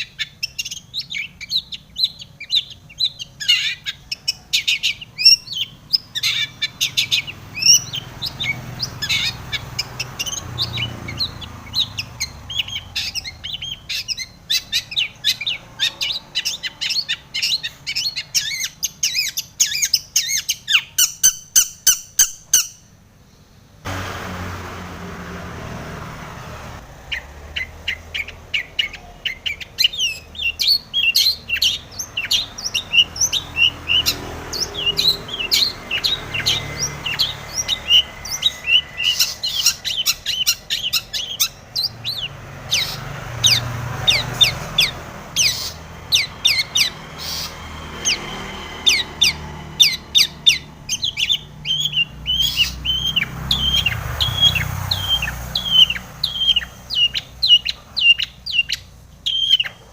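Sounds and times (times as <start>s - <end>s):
bird singing chattering song: 0.0s - 23.7s, 27.0s - 59.9s.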